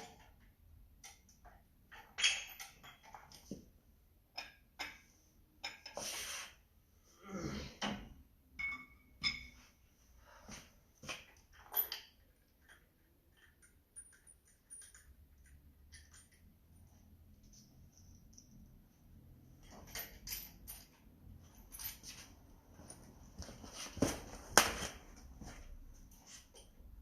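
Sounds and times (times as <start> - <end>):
metallic tool clinks and knocks: 1.9 - 3.4, 8.6 - 9.6, 11.6 - 16.8, 19.6 - 23.1.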